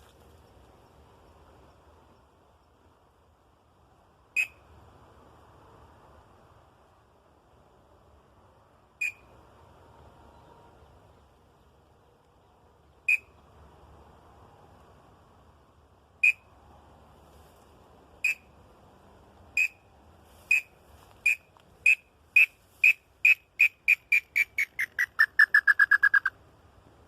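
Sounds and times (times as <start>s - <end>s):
bird call whistle notes: 4.4s - 4.6s, 9.0s - 9.3s, 13.1s - 13.4s, 16.2s - 16.5s, 18.2s - 18.5s, 19.6s - 19.8s, 20.5s - 26.3s.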